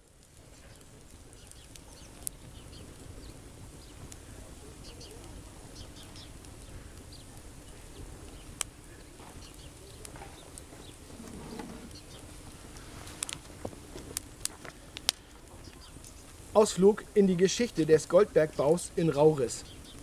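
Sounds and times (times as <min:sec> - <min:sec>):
campfire crackling and popping: 0:00.0 - 0:20.0
low steady rustle: 0:00.0 - 0:20.0
faint bird chirps: 0:04.8 - 0:12.2.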